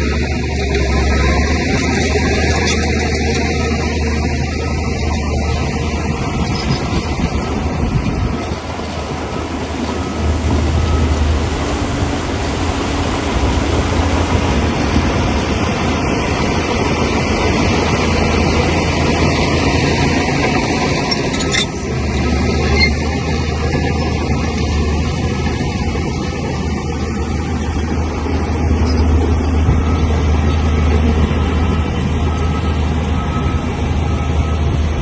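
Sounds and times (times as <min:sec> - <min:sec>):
bulldozer diesel engine: 0:00.0 - 0:35.0
steel tracks clanking: 0:08.2 - 0:34.1.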